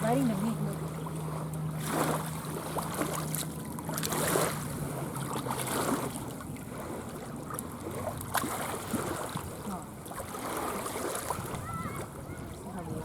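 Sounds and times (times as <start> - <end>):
distant motorboat engine droning: 0.0 - 13.0
wind on microphone: 10.2 - 13.0.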